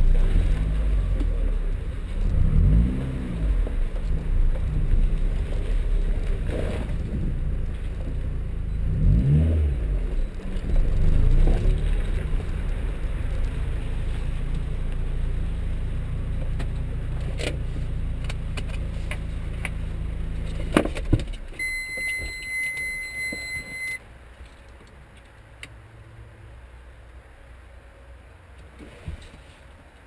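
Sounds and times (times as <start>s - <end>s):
car engine idling: 0.0s - 28.5s
dashboard warning beep: 21.6s - 24.0s.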